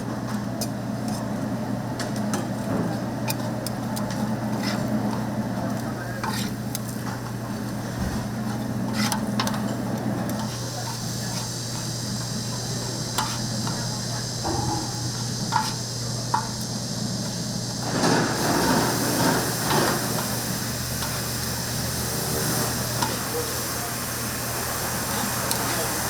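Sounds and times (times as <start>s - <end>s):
chicken sizzling: 1.8s - 26.0s
utensil scraping iron: 4.0s - 5.3s, 6.2s - 16.4s.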